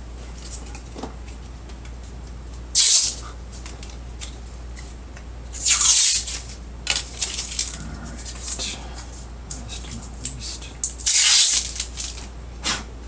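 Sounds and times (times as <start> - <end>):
plastic film peeling off: 10.9 - 12.3.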